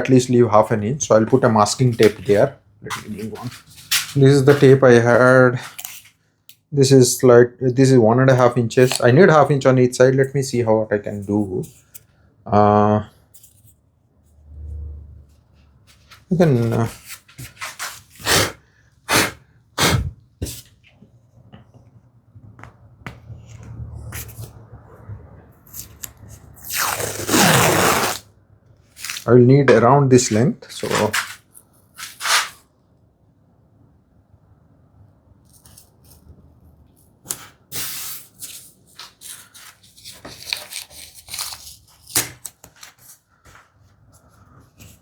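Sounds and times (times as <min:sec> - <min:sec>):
tape pulled off roll: 0:25.7 - 0:28.3
tape crackling rustles: 0:28.9 - 0:29.3, 0:38.2 - 0:45.0.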